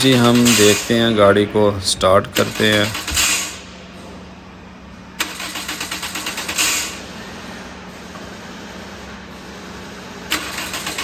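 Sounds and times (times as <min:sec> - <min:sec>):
car starter cranking: 0:00.0 - 0:01.2, 0:02.1 - 0:03.6, 0:05.2 - 0:07.0, 0:10.3 - 0:11.0.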